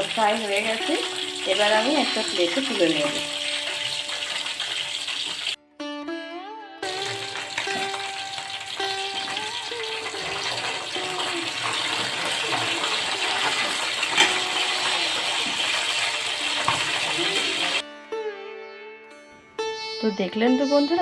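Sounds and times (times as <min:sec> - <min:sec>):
chicken sizzling in oil: 0:00.0 - 0:05.6, 0:06.8 - 0:17.8
instrumental music: 0:00.0 - 0:21.0.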